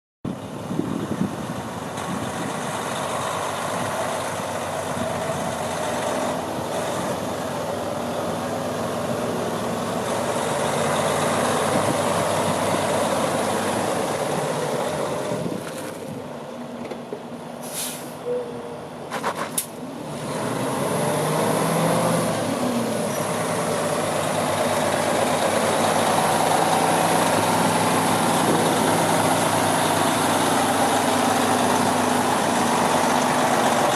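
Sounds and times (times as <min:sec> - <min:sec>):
diesel truck engine running: 0:00.3 - 0:33.9
air brake hisses: 0:17.6 - 0:18.4.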